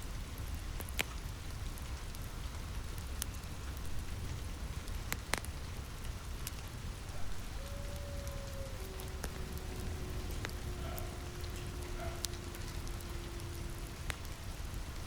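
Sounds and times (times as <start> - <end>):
rain on a roof: 0.0 - 15.0
fireplace crackling: 0.1 - 15.0
low rumble: 7.0 - 15.0.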